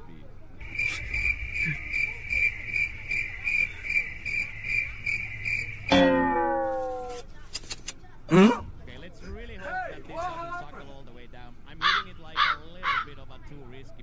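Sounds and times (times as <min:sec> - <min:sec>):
cricket chirping: 0:00.6 - 0:07.2
loud falling pitch sound: 0:05.9 - 0:07.2.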